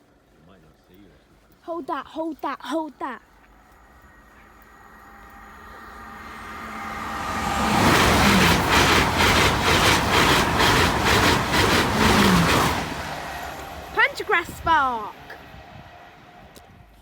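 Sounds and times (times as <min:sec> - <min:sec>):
train rushing past: 0:03.0 - 0:17.0
train wheels clattering: 0:03.4 - 0:17.0.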